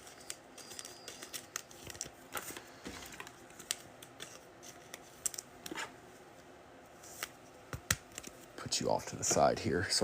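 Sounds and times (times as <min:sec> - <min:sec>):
trading cards clicking and rustling: 0:00.0 - 0:05.9, 0:07.1 - 0:08.5.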